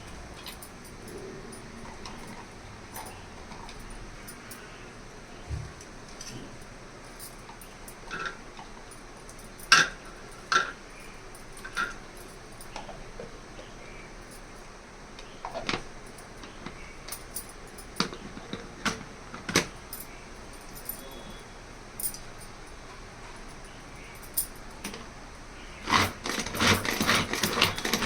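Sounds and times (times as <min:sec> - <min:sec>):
kitchen utensils clinking: 0:25.7 - 0:28.0.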